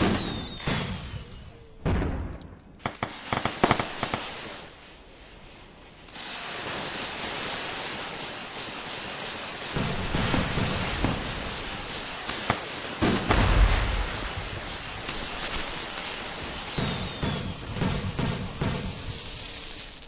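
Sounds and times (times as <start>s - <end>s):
firecracker cracks: 0.0s - 1.3s, 1.9s - 4.8s, 6.0s - 20.0s
fireworks hissing: 0.0s - 1.6s, 2.8s - 20.0s
firework bang: 0.0s - 4.5s, 9.7s - 19.2s.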